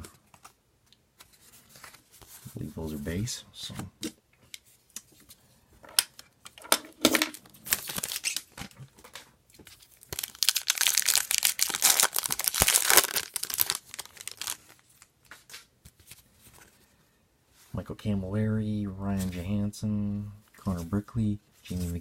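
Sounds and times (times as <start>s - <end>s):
wrapper tearing and crinkling: 7.3s - 8.6s, 9.8s - 15.1s.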